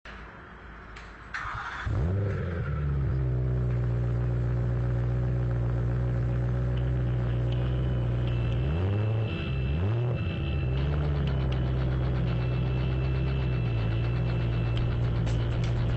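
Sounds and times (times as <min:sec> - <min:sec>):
car engine starting and idling: 0:01.0 - 0:15.9
engine throttle blips: 0:01.4 - 0:15.9.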